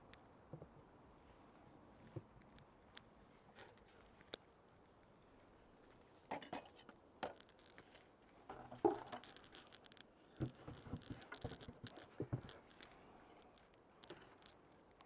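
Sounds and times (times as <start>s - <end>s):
rustling: 1.2s - 15.0s
handling clicks and knocks: 6.3s - 13.0s.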